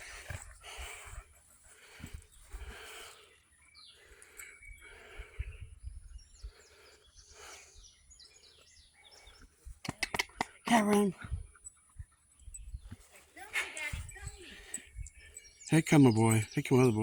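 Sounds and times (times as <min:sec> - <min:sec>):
dog panting: 0:00.0 - 0:03.2
bird chirps: 0:02.0 - 0:17.0.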